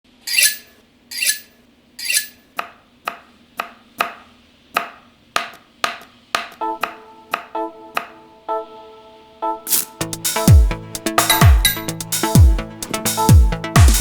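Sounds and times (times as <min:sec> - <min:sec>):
knife chopping on cutting board: 0:02.6 - 0:08.1.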